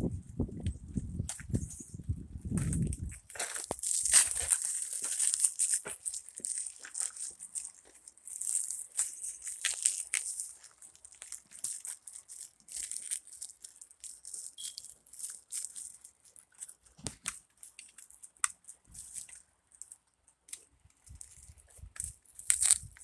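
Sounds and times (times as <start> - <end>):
rustling and crinkling: 0.0 - 23.0.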